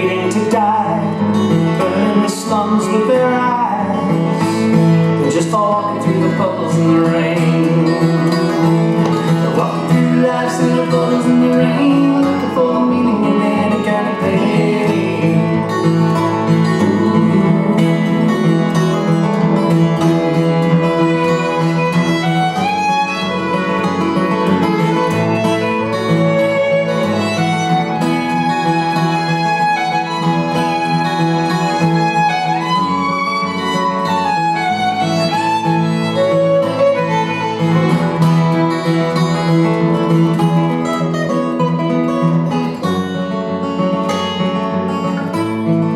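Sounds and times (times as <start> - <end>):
strummed acoustic guitar: 0.0 - 45.9
fiddle sliding melody: 5.8 - 41.6.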